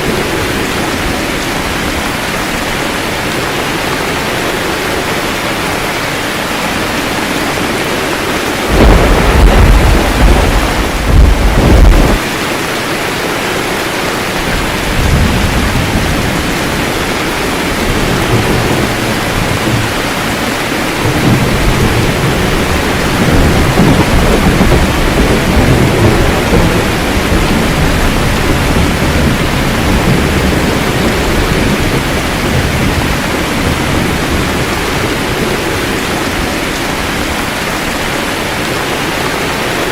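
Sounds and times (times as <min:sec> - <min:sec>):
steady rain: 0:00.0 - 0:39.9
low thunder rumbling: 0:06.9 - 0:12.3, 0:14.3 - 0:37.8
loud thunderclap: 0:08.6 - 0:12.2, 0:14.5 - 0:36.1.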